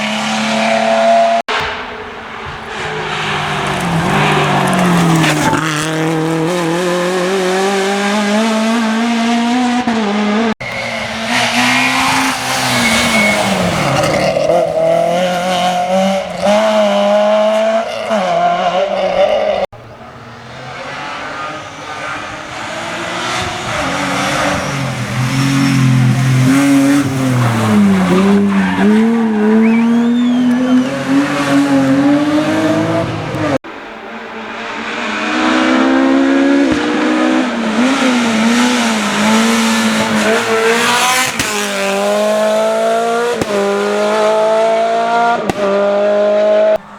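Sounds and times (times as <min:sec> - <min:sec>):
rally car engines revving: 0:00.0 - 0:46.9
tyre squeal: 0:10.6 - 0:14.5, 0:26.5 - 0:31.0.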